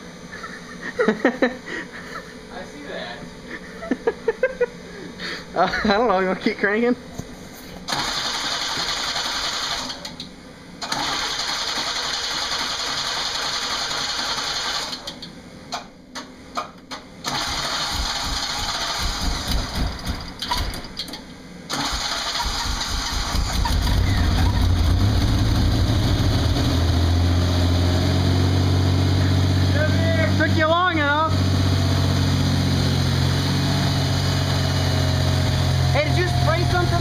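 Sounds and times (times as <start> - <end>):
starter motor cranking engine: 7.8 - 10.2, 10.8 - 15.2, 16.9 - 26.8
engine sputtering pops: 15.1 - 21.2
car engine running: 17.2 - 20.5, 21.9 - 37.0.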